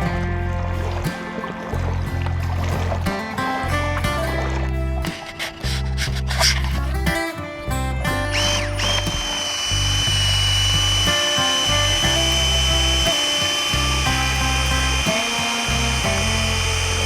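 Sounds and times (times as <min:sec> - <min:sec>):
background music with bass line: 0:00.0 - 0:17.0
motor whining: 0:08.2 - 0:17.0.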